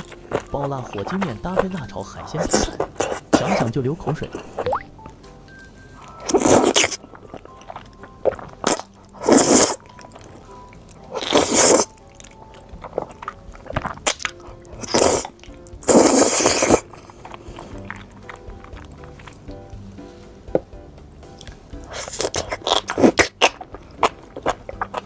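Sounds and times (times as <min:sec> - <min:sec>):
crunchy bites and chewing: 0:00.0 - 0:05.0, 0:06.2 - 0:19.6, 0:21.4 - 0:25.0
background music: 0:00.0 - 0:25.0
mouth clicks: 0:11.2 - 0:19.5, 0:21.4 - 0:25.0.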